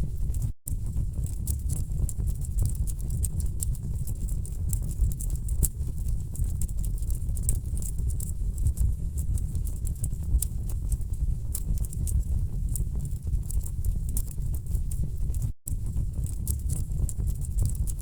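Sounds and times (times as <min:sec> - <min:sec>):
wood fire crackling: 0:09.2 - 0:18.0.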